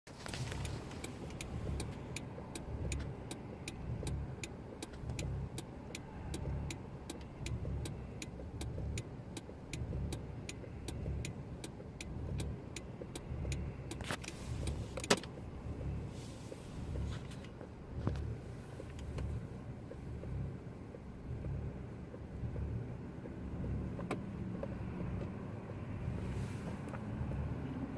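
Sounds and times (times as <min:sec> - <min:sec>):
fast ticking: 0:00.6 - 0:16.1.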